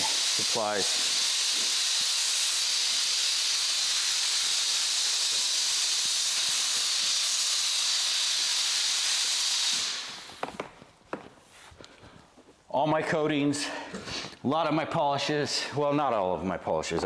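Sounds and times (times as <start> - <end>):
spray hiss: 0.0 - 10.7.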